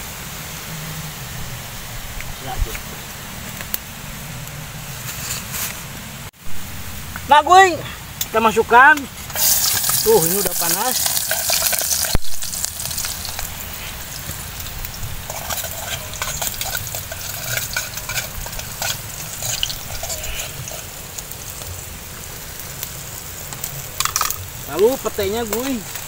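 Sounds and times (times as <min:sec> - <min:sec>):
aromatics sizzling in hot oil: 0:06.4 - 0:26.0
spatula stirring in metal pot: 0:10.9 - 0:12.2, 0:15.2 - 0:21.1.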